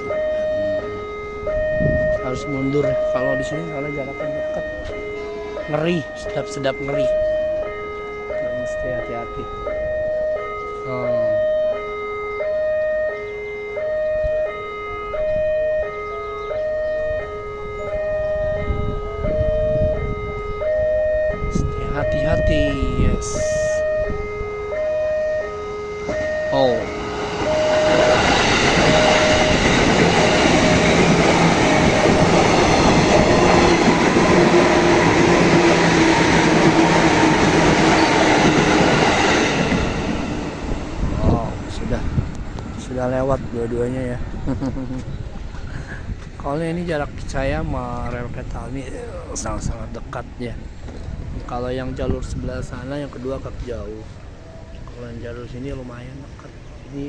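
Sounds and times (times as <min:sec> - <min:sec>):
level crossing two-tone alarm: 0:00.0 - 0:42.0
trains passing at speed: 0:00.0 - 0:57.0.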